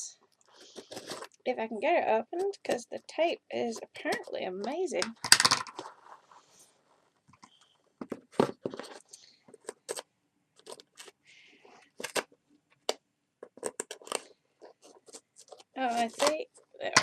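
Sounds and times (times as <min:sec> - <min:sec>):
fingers picking at packing tape: 0:09.5 - 0:10.0, 0:13.4 - 0:16.4.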